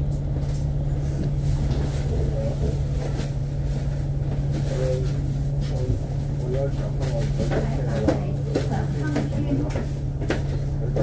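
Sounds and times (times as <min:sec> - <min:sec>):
bus engine and road drone: 0:00.0 - 0:11.0
constant hum: 0:00.0 - 0:11.0
faint cabin rattles: 0:00.2 - 0:11.0.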